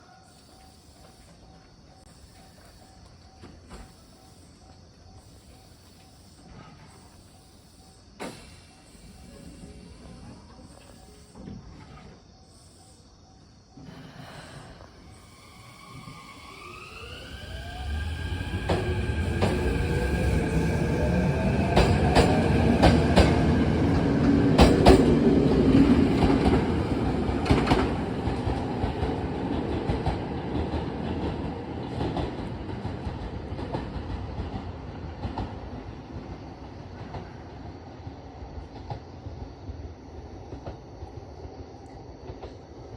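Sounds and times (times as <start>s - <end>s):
train wheels clicking over rail joints: 8.2s - 12.2s, 15.9s - 35.9s
electric train motor whine: 14.8s - 28.5s.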